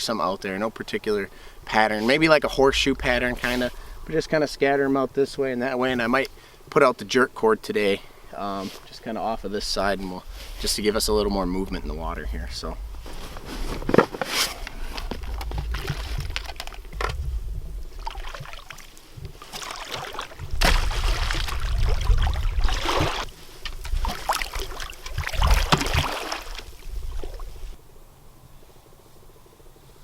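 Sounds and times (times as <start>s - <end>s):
low rumble: 2.2s - 5.2s, 9.4s - 18.4s
water sloshing and splashing: 9.7s - 27.8s.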